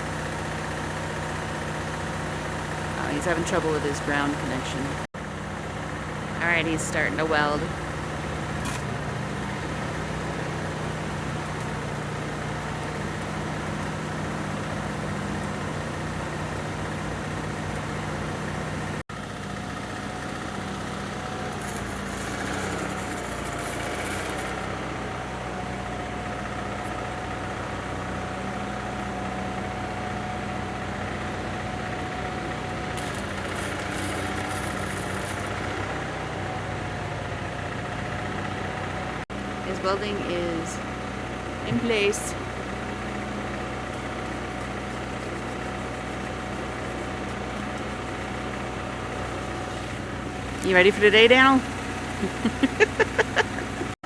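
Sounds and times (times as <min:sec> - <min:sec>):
arc welder crackling and hissing: 0:05.8 - 0:24.8, 0:32.1 - 0:35.9, 0:41.1 - 0:54.0
low machine hum: 0:39.4 - 0:54.0.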